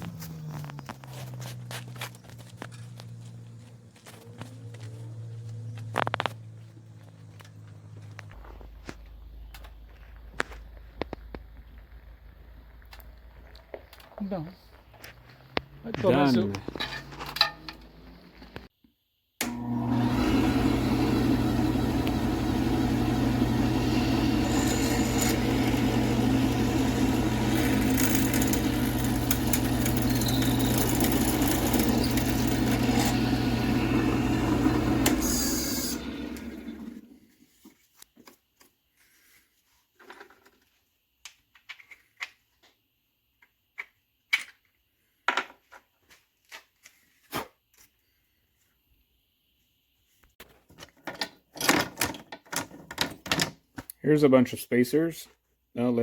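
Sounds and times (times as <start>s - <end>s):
power tool motor humming: 19.4s - 37.2s.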